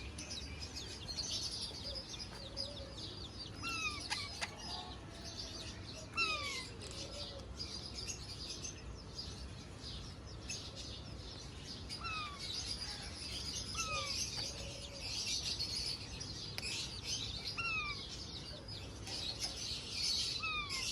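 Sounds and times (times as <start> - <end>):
parrots chirping and chattering: 0.0 - 5.3, 6.0 - 8.2, 11.8 - 20.9.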